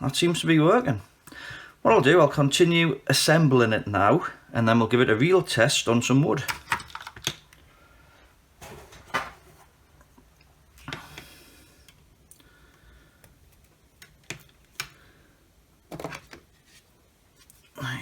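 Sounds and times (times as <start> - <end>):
saw parts clicking and knocking: 6.4 - 7.6.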